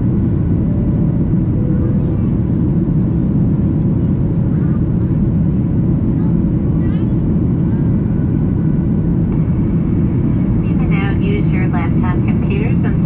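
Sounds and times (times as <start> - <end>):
jet engine roar in cabin: 0.0 - 13.0.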